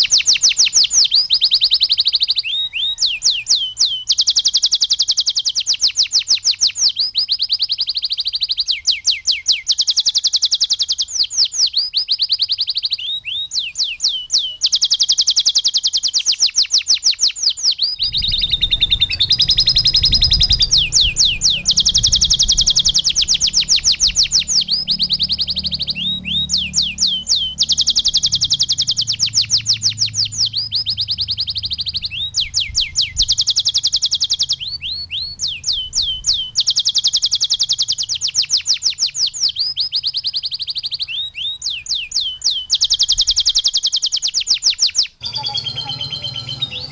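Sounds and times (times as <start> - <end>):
canary singing trills: 0.0 - 46.9
low hum: 18.0 - 26.6.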